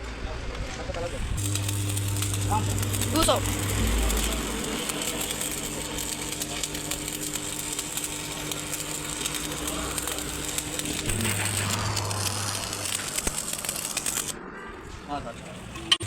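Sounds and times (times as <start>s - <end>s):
constant machine tone: 0.8s - 16.0s
deeper machine hum: 1.1s - 16.0s
workshop machinery humming: 1.1s - 16.0s.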